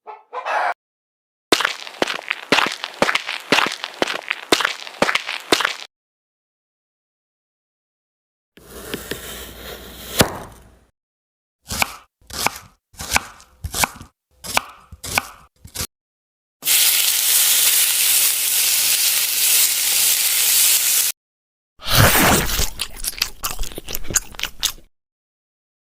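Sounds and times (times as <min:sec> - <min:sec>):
cartoon rustling: 0:01.6 - 0:05.9, 0:21.8 - 0:24.9.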